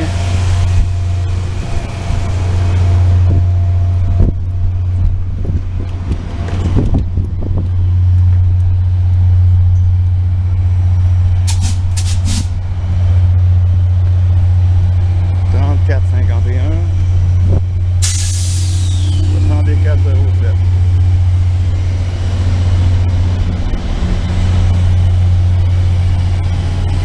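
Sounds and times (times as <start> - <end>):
train idling rumble: 0.0 - 27.0
sharp air hisses: 11.5 - 12.6, 18.0 - 19.4.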